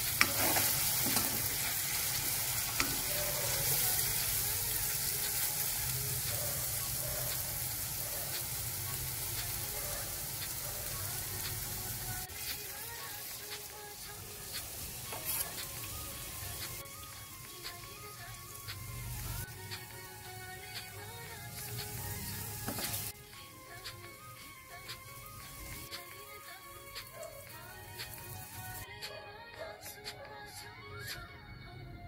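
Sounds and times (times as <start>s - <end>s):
metal spoon scraping and stirring: 0.0s - 1.8s, 15.1s - 15.8s
mushrooms sizzling in a wok: 0.0s - 26.5s, 27.1s - 28.8s.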